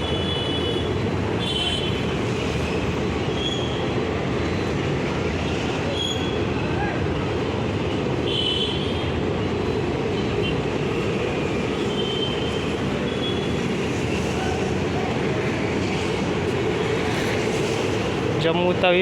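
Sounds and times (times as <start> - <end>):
high train squeals: 0.0 - 6.7, 8.2 - 18.4
train coaches rumbling: 0.0 - 19.0.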